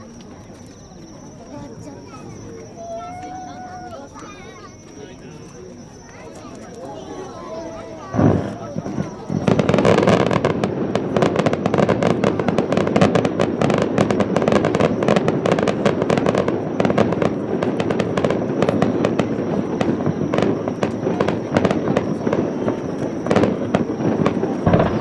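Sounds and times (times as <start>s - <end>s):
fireworks booming and crackling: 1.0s - 25.0s.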